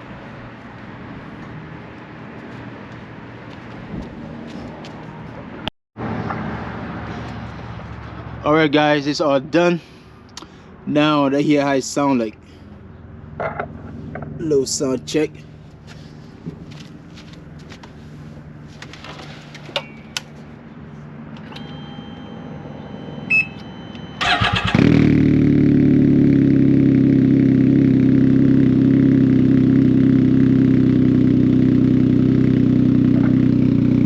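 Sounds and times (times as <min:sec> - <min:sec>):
motorcycle engine idling loudly: 0:24.4 - 0:34.0.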